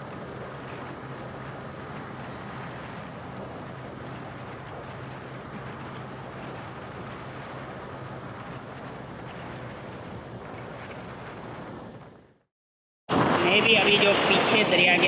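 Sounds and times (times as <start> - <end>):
motorcycle engine hum: 0.0 - 12.5
wind and road noise: 0.0 - 12.5, 13.1 - 15.0.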